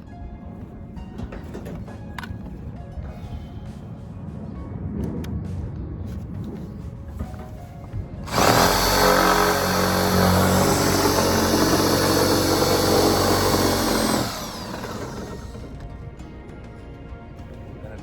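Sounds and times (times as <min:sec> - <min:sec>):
power drill running: 0:08.2 - 0:15.9.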